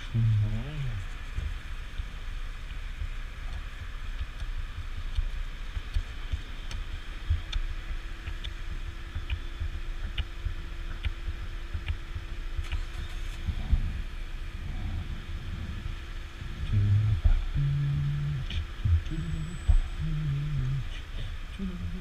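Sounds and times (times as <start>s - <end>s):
faint steady hum: 0.0s - 22.0s
light ticks: 2.6s - 12.8s
wind buffeting microphone: 13.3s - 17.7s.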